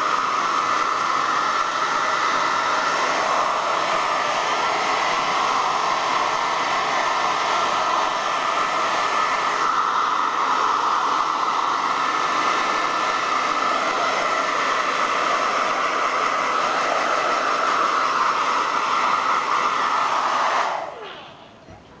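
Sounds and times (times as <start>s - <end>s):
hair dryer blowing: 0.0s - 21.6s
motor winding down whine: 18.6s - 21.6s.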